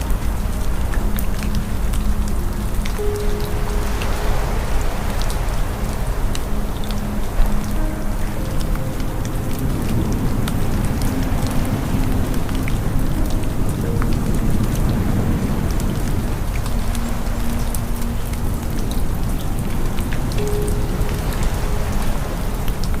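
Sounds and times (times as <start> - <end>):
steady rain: 0.0 - 23.0.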